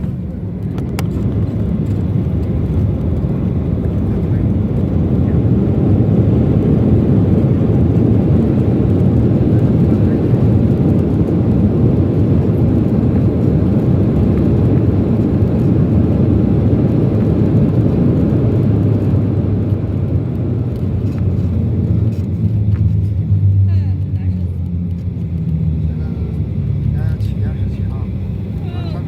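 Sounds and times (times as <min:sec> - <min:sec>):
jet engine and airflow in cabin: 0:00.0 - 0:29.0.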